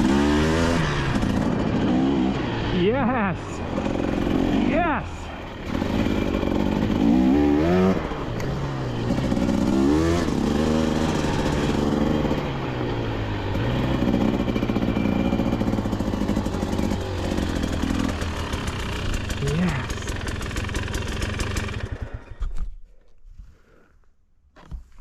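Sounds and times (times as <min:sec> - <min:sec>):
dirt bike engine revving: 0:00.0 - 0:22.4.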